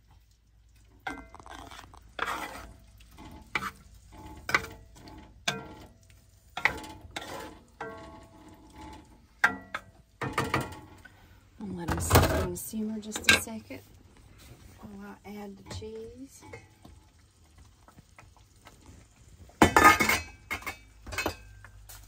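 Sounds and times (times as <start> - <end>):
metal utensil scraping a pan: 1.0 - 11.1, 15.6 - 17.0, 19.6 - 21.7.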